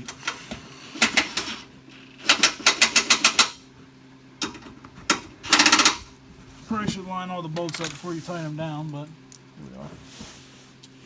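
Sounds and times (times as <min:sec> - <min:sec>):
wrench clicking: 0:05.5 - 0:06.0.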